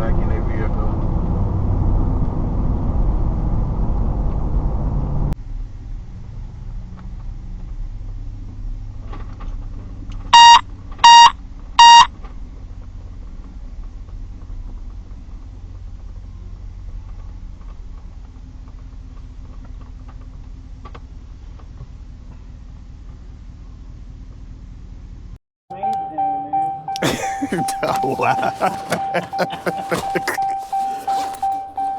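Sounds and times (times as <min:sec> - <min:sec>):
loud electronic beeps: 0:10.4 - 0:12.1.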